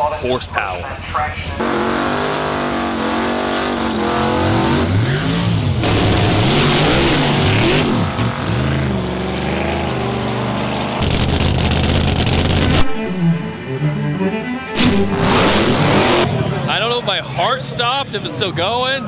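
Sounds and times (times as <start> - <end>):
car engine revving: 1.6 - 16.6.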